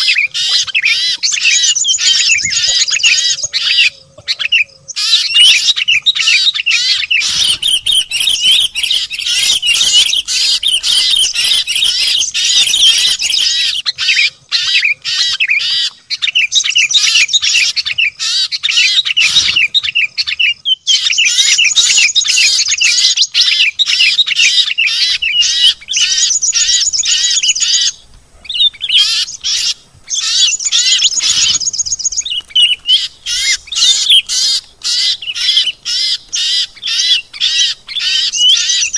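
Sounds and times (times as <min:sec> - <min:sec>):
small songbirds chirping: 0:00.0 - 0:38.9
fast high bird trills: 0:05.0 - 0:15.9, 0:24.5 - 0:38.9.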